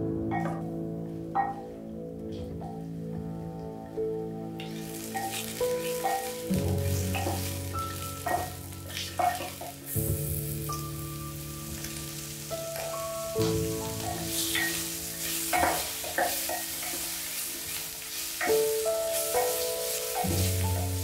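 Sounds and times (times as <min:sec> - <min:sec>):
ham sizzling in oil: 0:04.6 - 0:21.0.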